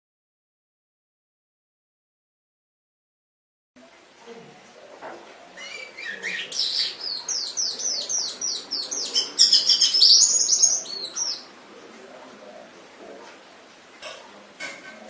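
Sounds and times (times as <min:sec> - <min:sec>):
canary singing: 0:05.4 - 0:11.5.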